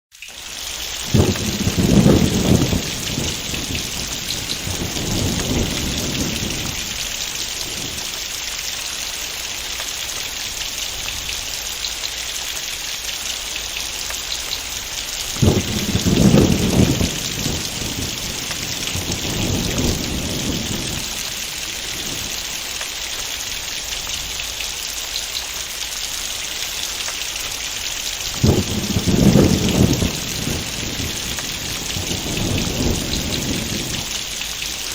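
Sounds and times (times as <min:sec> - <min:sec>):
heavy rain falling: 0:00.2 - 0:34.9
rolling thunder: 0:01.0 - 0:08.4, 0:15.3 - 0:22.7, 0:28.3 - 0:34.9.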